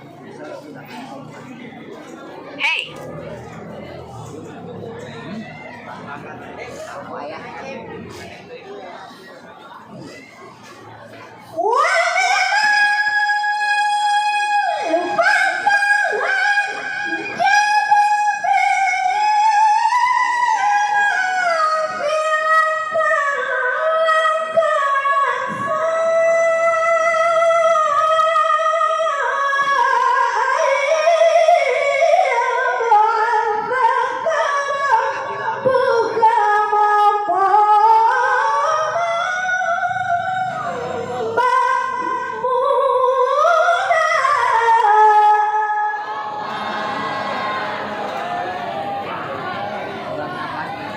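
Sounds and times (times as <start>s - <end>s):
woman reciting melodically: 11.4s - 47.8s.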